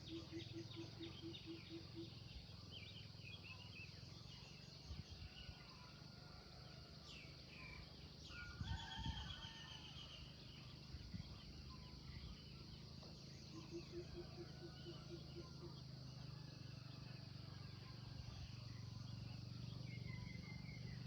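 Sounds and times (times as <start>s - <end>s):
songbirds chirping and twittering: 0.0s - 21.0s.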